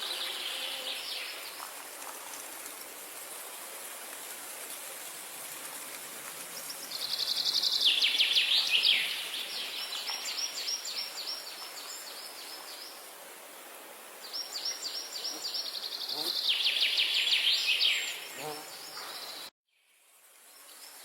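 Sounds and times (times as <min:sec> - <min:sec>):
steady background hiss: 0:00.0 - 0:21.0
songbird chirping: 0:06.5 - 0:13.1, 0:14.2 - 0:21.0.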